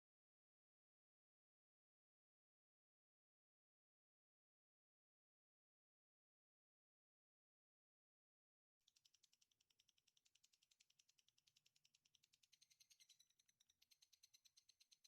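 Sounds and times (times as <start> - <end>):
rapid chirping trill: 8.9 - 15.0.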